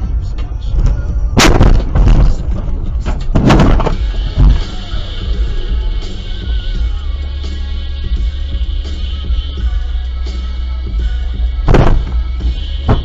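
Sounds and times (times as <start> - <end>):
vehicle crash with crunching: 0.8 - 4.8, 11.7 - 12.2
low thump: 11.7 - 12.2.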